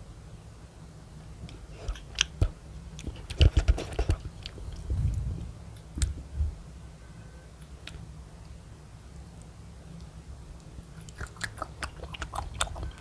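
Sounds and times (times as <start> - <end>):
person chewing gummy candy: 10.9 - 13.0
wet mouth clicks and smacks: 11.0 - 13.0.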